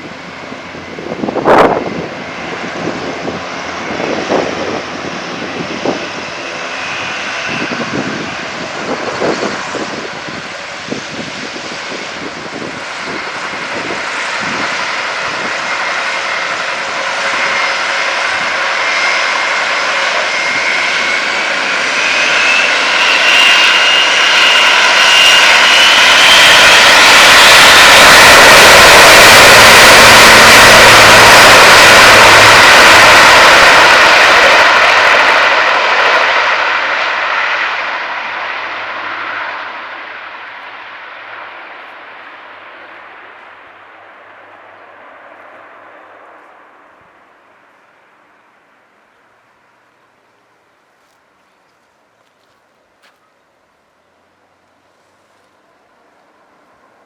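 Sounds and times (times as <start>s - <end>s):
rising engine whine: 0.0s - 57.0s
turboprop aircraft engines running: 0.0s - 57.0s.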